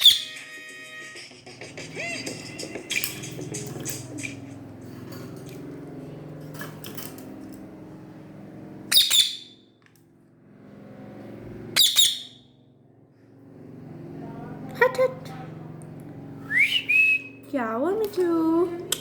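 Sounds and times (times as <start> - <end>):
parrot squawking: 0.0 - 1.3, 8.9 - 9.5, 11.8 - 12.4
faint low hum: 12.5 - 19.0.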